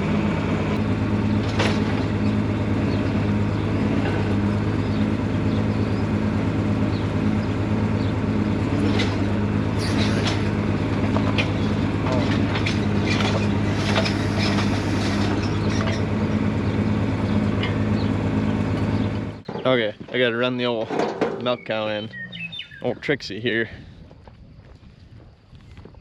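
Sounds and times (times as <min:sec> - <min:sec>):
engine running steadily: 0:00.0 - 0:26.0
metal clanks and rattles: 0:01.2 - 0:03.2, 0:08.7 - 0:16.5, 0:17.2 - 0:18.1, 0:18.7 - 0:22.0.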